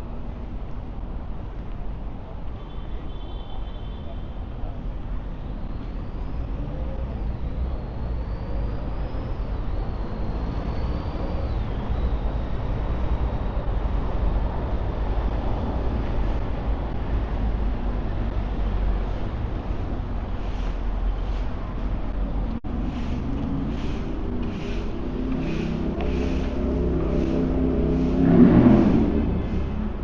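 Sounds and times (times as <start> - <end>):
road traffic rumbling: 0.0 - 30.0.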